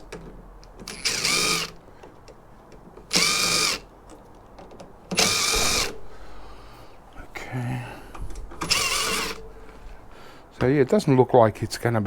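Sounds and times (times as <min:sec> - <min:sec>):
electric drill-driver whining: 0:00.8 - 0:01.8, 0:03.1 - 0:03.9, 0:05.1 - 0:06.0, 0:08.6 - 0:09.4.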